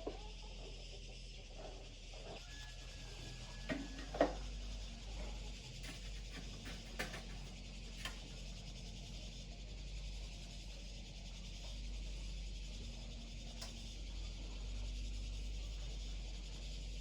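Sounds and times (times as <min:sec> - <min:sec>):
steady low hum: 0:00.0 - 0:17.0
small objects clicking and tapping: 0:05.8 - 0:08.2.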